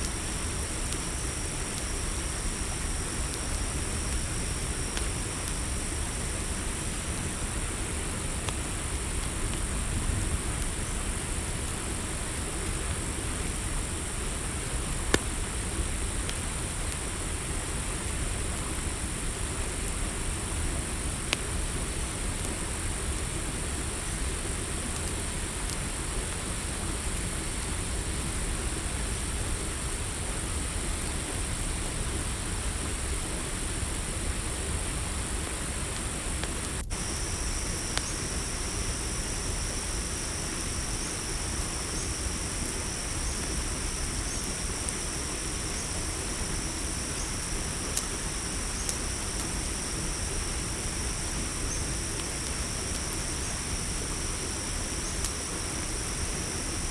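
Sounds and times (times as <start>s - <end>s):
campfire rumbling and crackling: 0.0s - 56.9s
crickets trilling: 0.0s - 56.9s
lower cricket trill: 31.9s - 56.9s.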